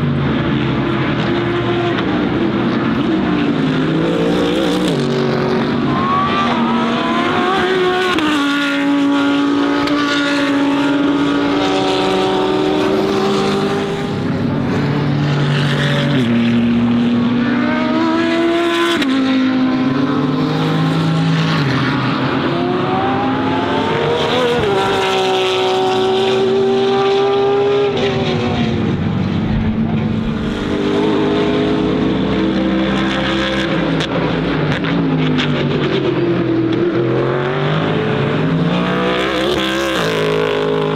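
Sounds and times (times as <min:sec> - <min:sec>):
race car engines passing: 0:00.0 - 0:40.9.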